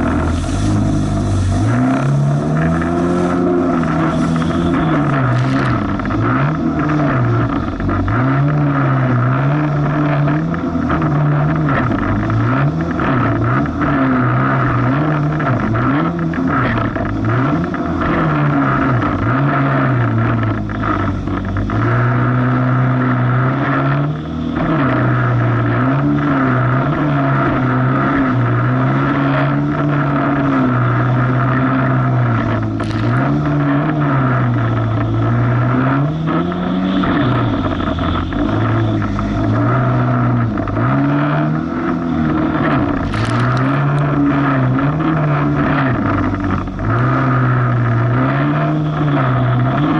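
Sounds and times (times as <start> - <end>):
steady rushing noise: 0.0 - 13.8, 24.0 - 47.0
jet ski engine running: 0.0 - 49.9.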